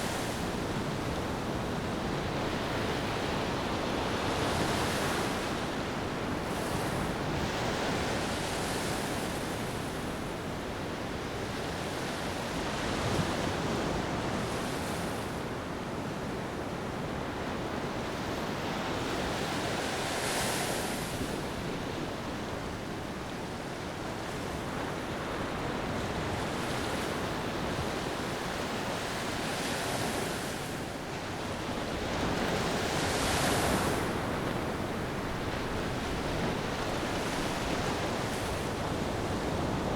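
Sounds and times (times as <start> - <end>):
sea waves washing on beach: 17.9 - 39.9.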